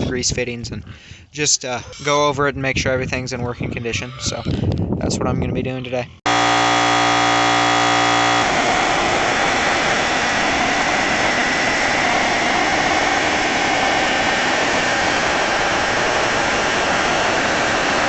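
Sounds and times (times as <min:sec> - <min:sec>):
air compressor running: 0:06.3 - 0:18.0.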